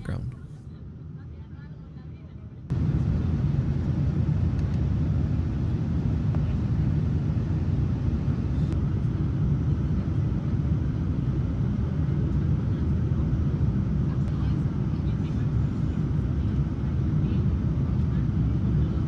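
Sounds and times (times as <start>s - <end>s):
airplane cabin engine rumble: 0.0s - 0.6s.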